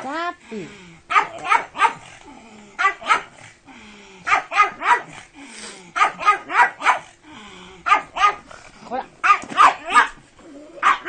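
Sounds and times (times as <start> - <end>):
dog barking: 1.1 - 2.1, 2.8 - 3.4, 4.3 - 5.2, 6.0 - 7.1, 7.8 - 8.5, 9.2 - 10.2, 10.8 - 11.0.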